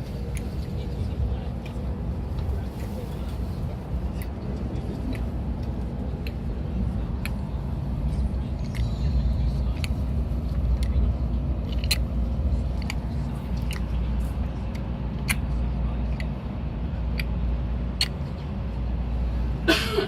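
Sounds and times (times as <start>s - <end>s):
train cabin rumble: 0.0s - 20.0s
baby mouth clicks and smacks: 8.6s - 8.9s, 9.7s - 10.0s, 11.6s - 14.0s, 14.7s - 15.5s, 18.0s - 18.2s.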